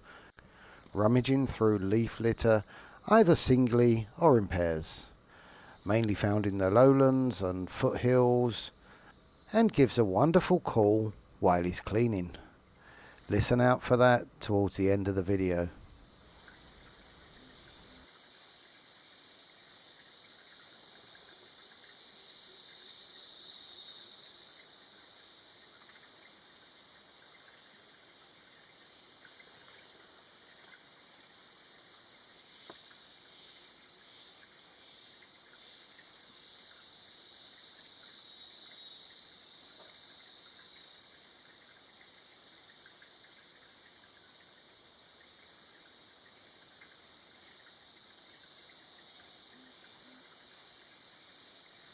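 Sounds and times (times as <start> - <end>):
insects droning: 0.0 - 51.9
faint tick: 32.6 - 32.9.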